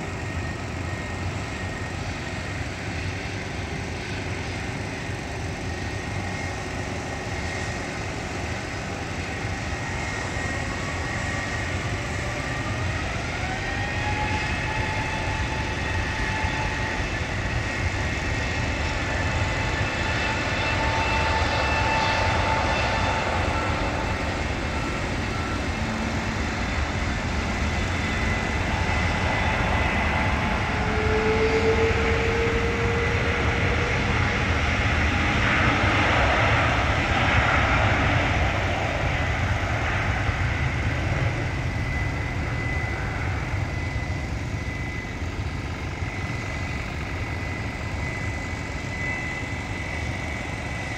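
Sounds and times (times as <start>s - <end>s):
jet engines spooling up: 0.0s - 50.9s.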